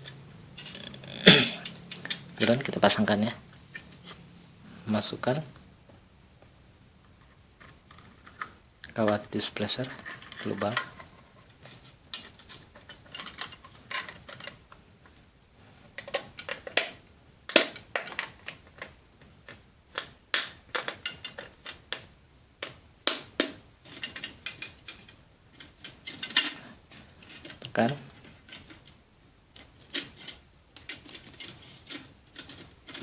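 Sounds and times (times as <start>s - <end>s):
tin can metal and wire clicking: 29.6s - 33.0s.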